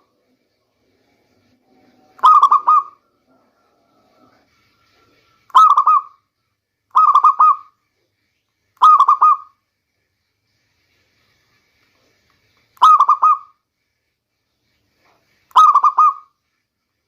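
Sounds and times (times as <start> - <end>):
dove cooing: 2.2 - 3.0.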